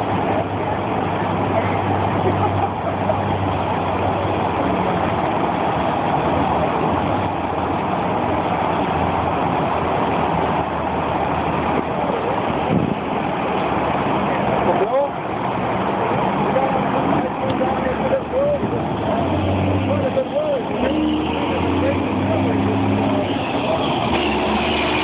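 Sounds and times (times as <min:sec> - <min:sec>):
dense rushing noise: 0:00.0 - 0:25.0
vehicle engine humming: 0:00.0 - 0:25.0.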